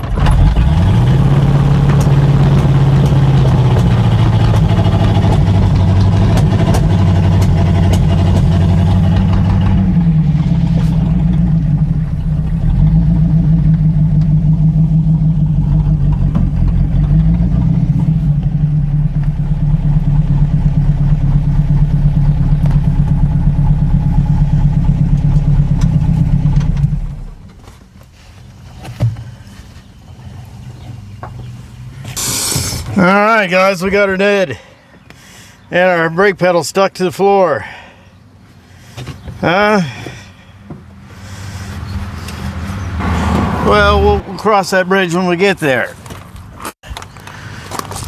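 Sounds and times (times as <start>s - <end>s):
car engine running at low speed: 0.0s - 27.8s.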